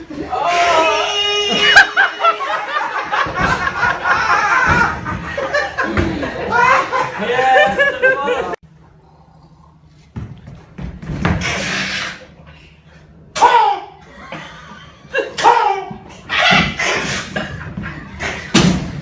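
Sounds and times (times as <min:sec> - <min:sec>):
man laughing shrieking: 0:00.3 - 0:05.0, 0:06.3 - 0:08.6.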